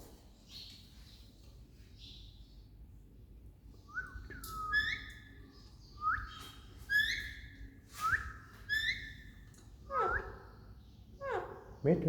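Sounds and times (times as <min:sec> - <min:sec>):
parrot whistling: 0:04.1 - 0:05.2, 0:06.9 - 0:07.4, 0:08.0 - 0:09.2, 0:09.9 - 0:10.4.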